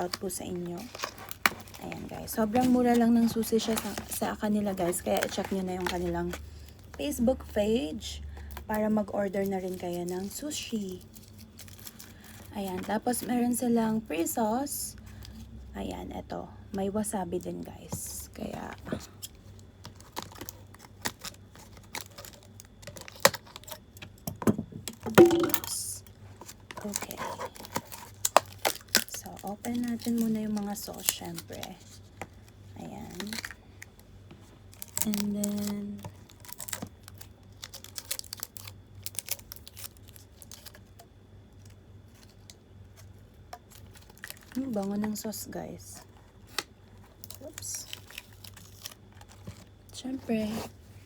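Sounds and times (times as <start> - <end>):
plastic packaging crinkling and tearing: 0.0 - 7.0, 8.6 - 13.2, 18.4 - 24.0, 25.1 - 45.4, 46.0 - 50.8
plastic containers clicking: 24.3 - 25.8.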